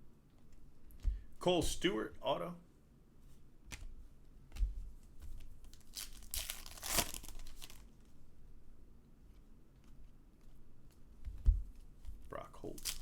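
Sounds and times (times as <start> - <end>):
trading cards flipped by hand: 3.3 - 7.9.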